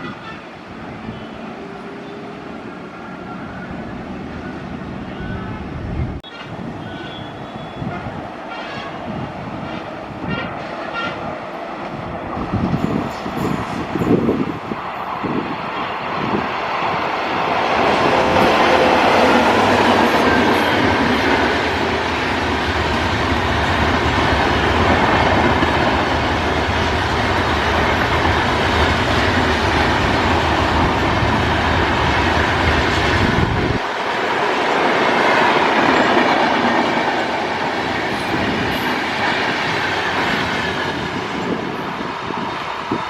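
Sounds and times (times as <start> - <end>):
train coaches rushing past: 0.0 - 43.0
clickety-clack over rail joints: 17.8 - 33.8.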